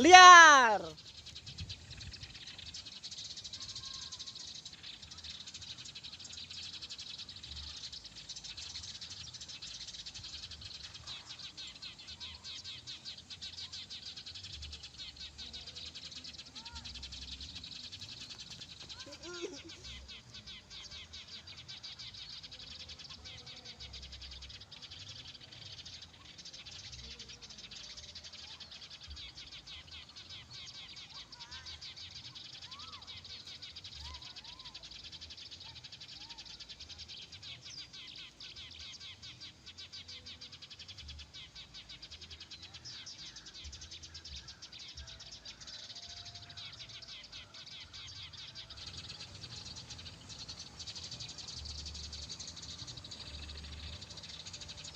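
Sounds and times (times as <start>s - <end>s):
rapid high chirping: 0.0s - 1.0s
rising-and-falling calls: 0.0s - 1.0s.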